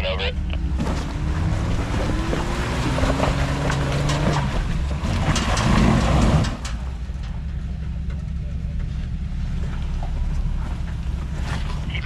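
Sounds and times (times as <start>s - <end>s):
engine revving hard: 0.7s - 6.6s.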